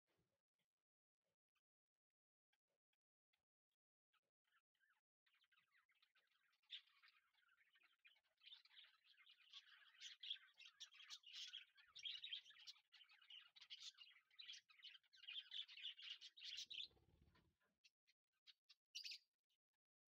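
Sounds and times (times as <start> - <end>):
small birds chirping: 4.1 - 19.8.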